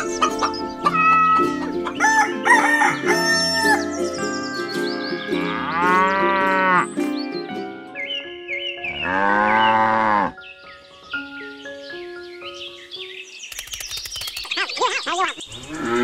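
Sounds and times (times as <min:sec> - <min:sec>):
light background music: 0:00.0 - 0:14.0
rooster crowing: 0:02.0 - 0:03.9.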